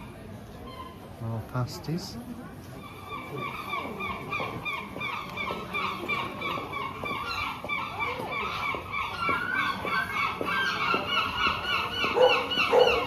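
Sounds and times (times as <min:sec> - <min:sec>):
gulls calling: 0:02.8 - 0:13.0.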